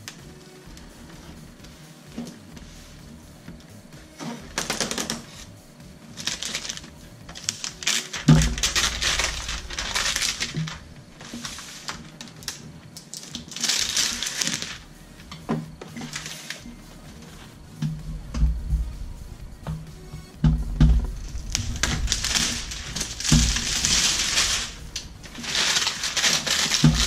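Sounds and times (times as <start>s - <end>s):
packaging rustling and scraping: 6.2s - 14.9s, 15.5s - 27.0s.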